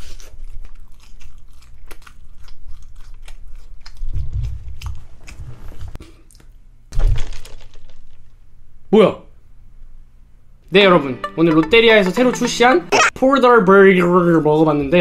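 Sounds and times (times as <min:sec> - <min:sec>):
chewing crunches: 0:00.0 - 0:06.6.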